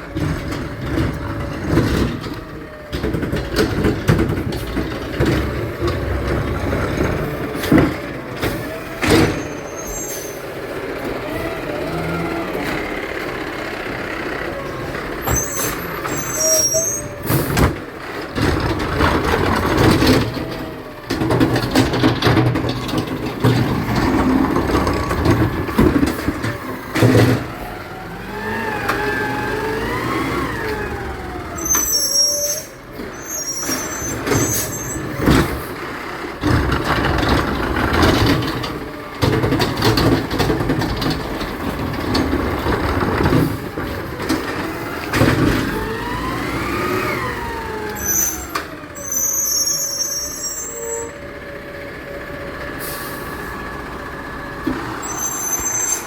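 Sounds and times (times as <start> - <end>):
garbage truck engine revving: 0.0 - 56.0
high squeals and hisses: 15.3 - 17.2, 49.0 - 51.2, 55.0 - 56.0.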